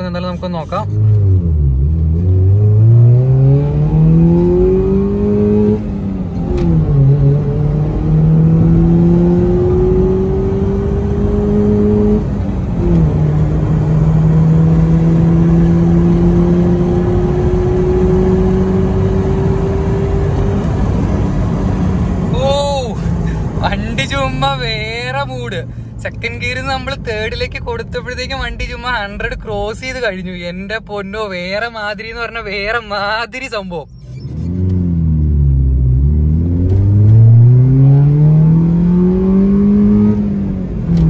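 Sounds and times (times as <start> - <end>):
car engine accelerating hard: 0.8 - 22.3, 34.0 - 41.0.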